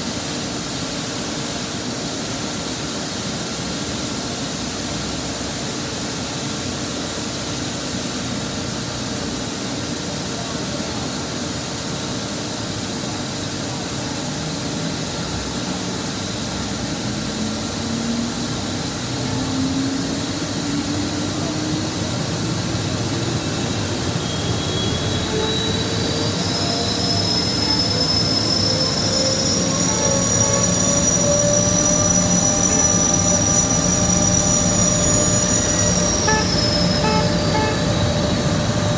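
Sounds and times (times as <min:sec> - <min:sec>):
whistle-like tone rising in pitch: 0:23.3 - 0:38.9.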